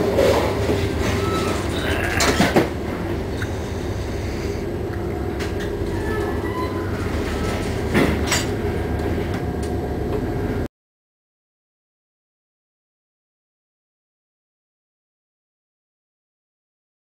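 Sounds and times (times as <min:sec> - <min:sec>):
ship low rumble: 0:00.0 - 0:10.7.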